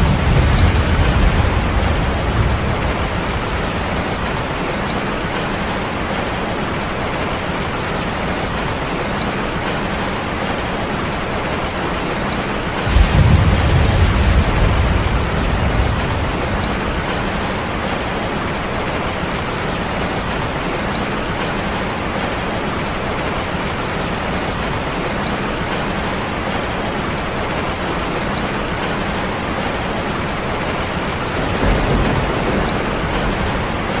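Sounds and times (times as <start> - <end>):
thunder rumbling: 0.0 - 4.6, 12.7 - 18.6, 31.2 - 34.0
steady rain: 0.0 - 34.0.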